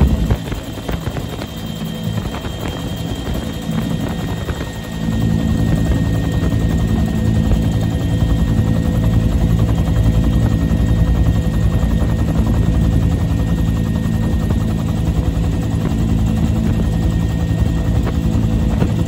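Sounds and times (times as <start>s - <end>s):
helicopter engine and rotor: 0.0s - 19.0s.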